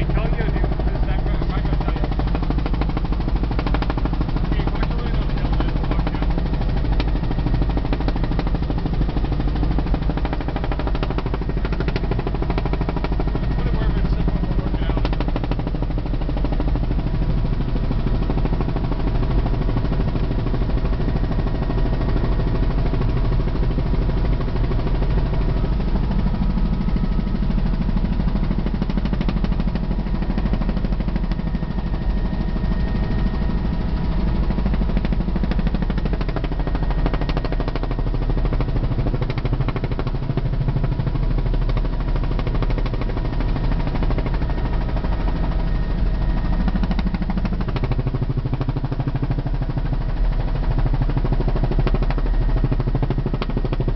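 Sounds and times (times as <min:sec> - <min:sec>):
helicopter rotor and engine: 0:00.0 - 0:53.9.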